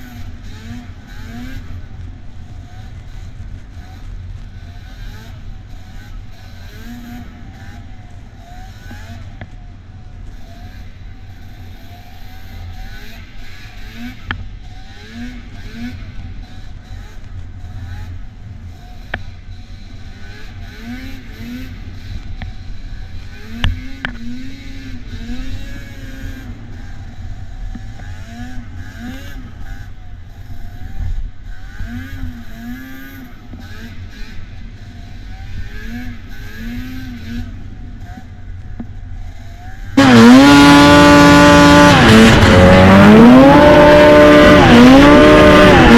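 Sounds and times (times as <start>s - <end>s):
snowmobile revving up close: 0.0s - 2.0s, 2.6s - 9.4s, 11.5s - 18.1s, 19.0s - 27.2s, 35.1s - 38.3s, 39.2s - 45.9s
snowmobile engines blipping throttle: 40.0s - 45.9s.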